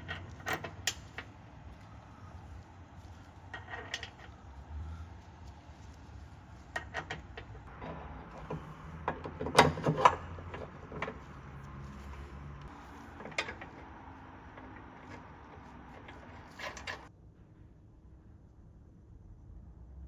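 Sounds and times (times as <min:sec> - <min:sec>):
tools and car parts clicking: 0:00.0 - 0:01.9, 0:03.4 - 0:04.4, 0:06.6 - 0:11.8, 0:12.6 - 0:17.1.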